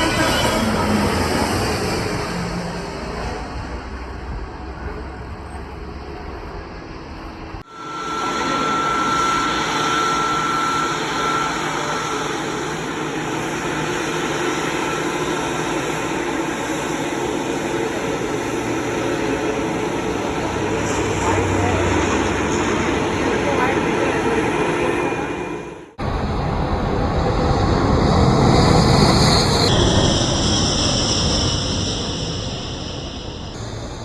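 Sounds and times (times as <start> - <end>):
jet engine roar: 0.0 - 34.0
high steady whine: 7.4 - 34.0.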